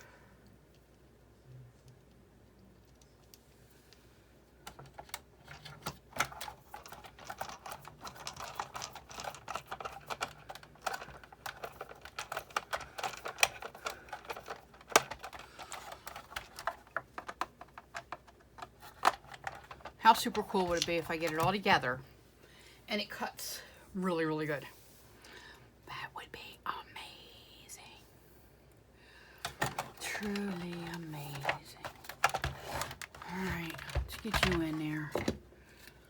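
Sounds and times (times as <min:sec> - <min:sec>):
plastic and metal parts clicking: 0:04.6 - 0:21.6, 0:29.4 - 0:36.0.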